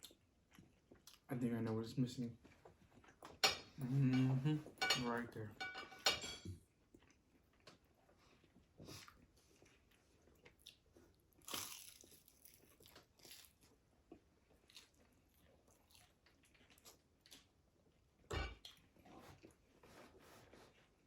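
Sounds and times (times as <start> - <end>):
crunching crispy fried food: 10.4 - 13.9.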